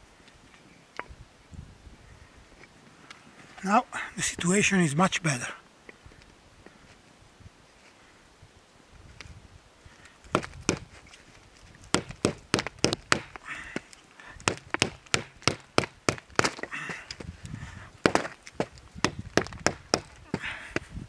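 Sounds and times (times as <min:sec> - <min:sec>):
wood cracking and snapping: 0:10.3 - 0:20.9.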